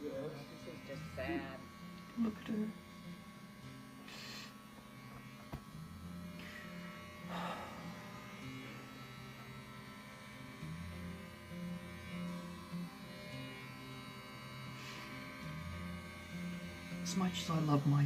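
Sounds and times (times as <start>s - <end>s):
electric hair clippers buzzing: 0.0s - 18.0s.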